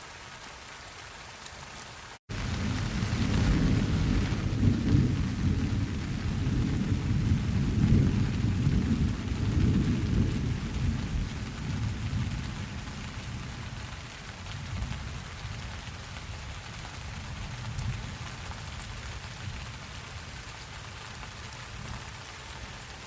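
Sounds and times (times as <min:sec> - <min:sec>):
rain hissing: 0:00.0 - 0:23.0
rolling thunder: 0:02.3 - 0:13.9.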